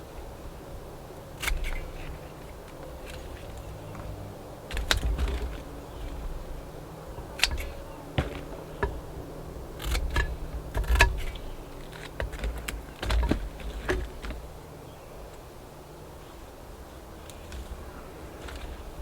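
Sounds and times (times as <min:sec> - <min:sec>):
dull handling bumps: 0:01.4 - 0:15.5, 0:16.2 - 0:19.0.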